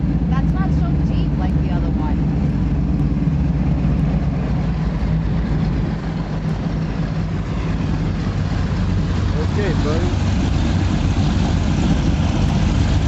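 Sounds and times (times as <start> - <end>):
powerboat engines droning: 0.0 - 13.0
rushing water noise: 0.0 - 13.0.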